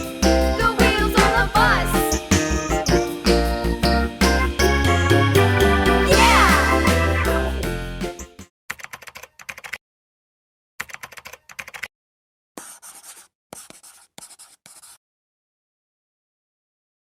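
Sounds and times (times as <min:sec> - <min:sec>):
background music: 0:00.0 - 0:08.4.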